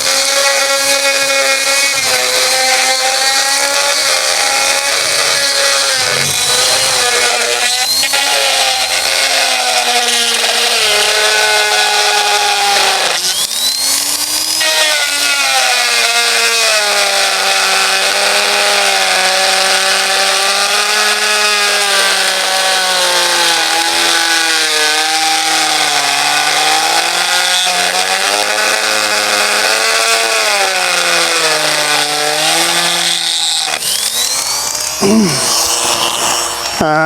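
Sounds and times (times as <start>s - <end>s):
power grinder running: 0.0s - 37.0s.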